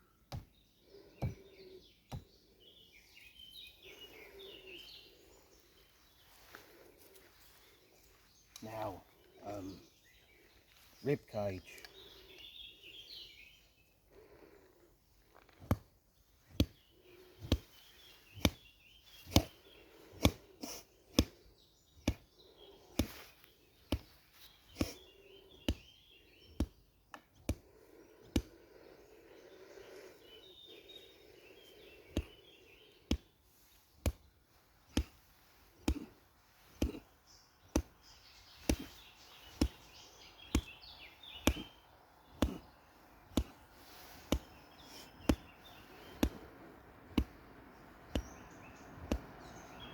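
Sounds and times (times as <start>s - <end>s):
sharp strikes against rib cage: 34.9s - 37.1s, 40.4s - 45.5s, 49.0s - 49.3s.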